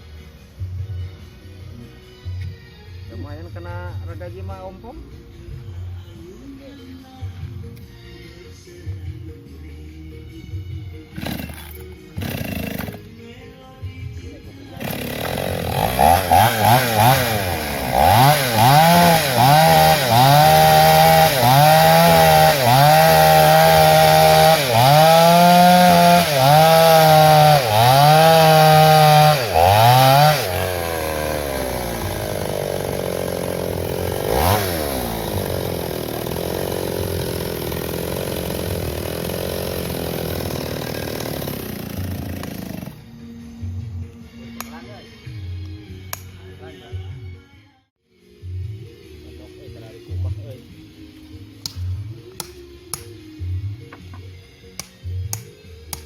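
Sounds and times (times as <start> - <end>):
chainsaw engine revving: 11.1 - 13.1, 14.8 - 43.1.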